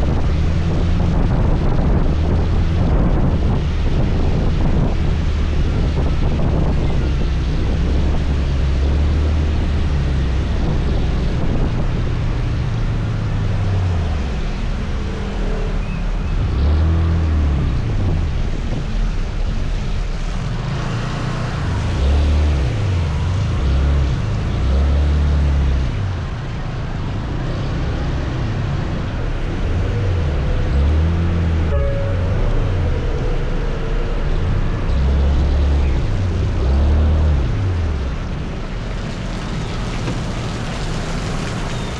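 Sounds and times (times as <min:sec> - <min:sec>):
wind buffeting microphone: 0:00.0 - 0:14.9, 0:37.4 - 0:41.9
tyre noise on wet road: 0:00.0 - 0:31.4, 0:35.6 - 0:41.9
scooter engine: 0:20.1 - 0:24.6, 0:38.2 - 0:41.9.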